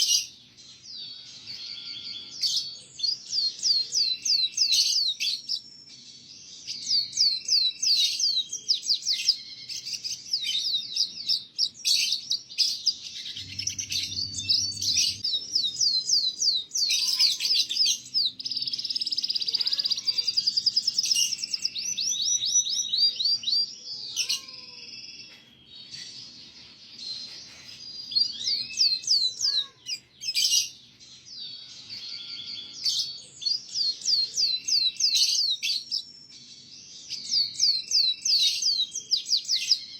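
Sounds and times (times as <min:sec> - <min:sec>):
canary singing trills: 0:00.0 - 0:39.9
brief low rumble: 0:13.2 - 0:15.2.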